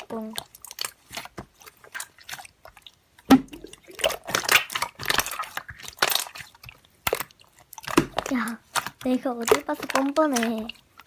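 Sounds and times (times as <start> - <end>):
slime squished by hand: 0.0 - 11.0.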